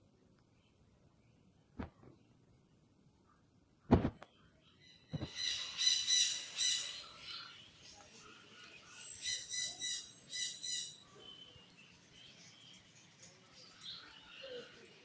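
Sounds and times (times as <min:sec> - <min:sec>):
caged birds chirping: 0:04.2 - 0:15.0.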